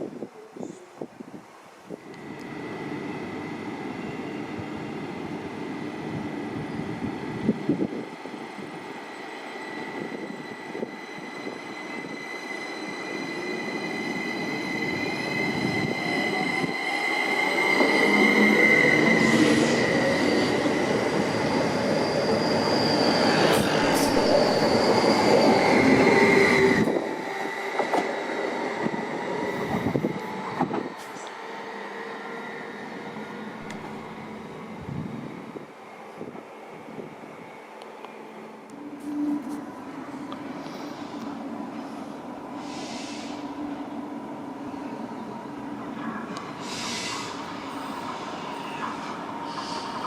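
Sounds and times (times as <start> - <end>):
faint rail noise: 0.0 - 50.0
train passing: 1.9 - 50.0
high-pitched whine: 9.3 - 27.8.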